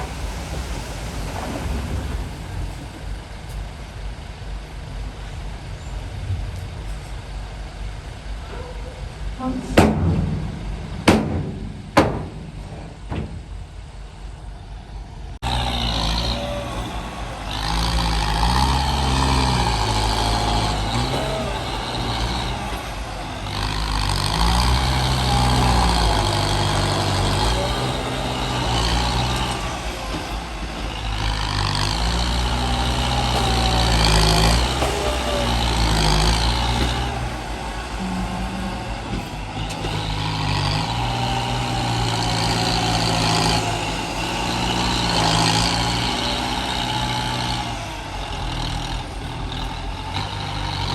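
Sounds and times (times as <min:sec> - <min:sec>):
diesel truck engine revving: 0:00.0 - 0:50.9
sharp bangs: 0:09.4 - 0:15.0.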